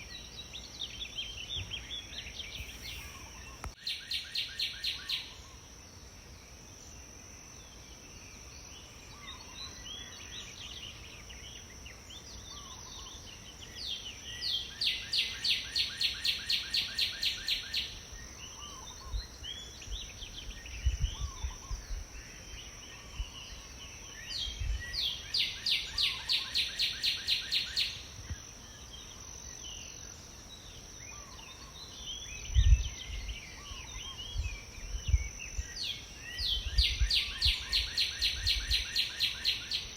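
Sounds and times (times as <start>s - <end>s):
birds chirping: 0.0s - 5.6s
songbird trilling: 1.4s - 5.6s, 23.0s - 28.1s.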